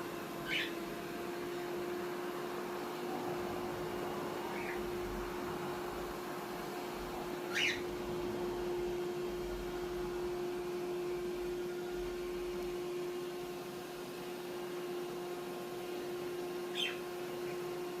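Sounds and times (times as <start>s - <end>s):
robot vacuum humming: 0.0s - 18.0s
cockatiel calls: 0.4s - 0.8s, 4.5s - 5.0s, 7.5s - 7.9s, 16.7s - 17.1s.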